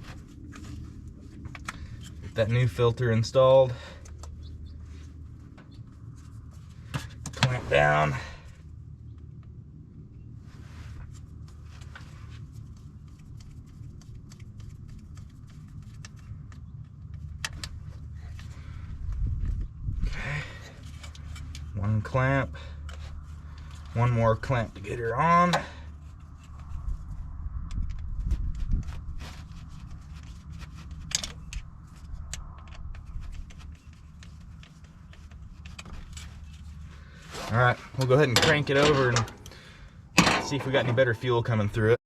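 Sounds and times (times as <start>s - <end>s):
low steady rumble: 0.0s - 42.0s
clicks and scrapes of hand work: 20.7s - 21.8s, 28.6s - 39.6s.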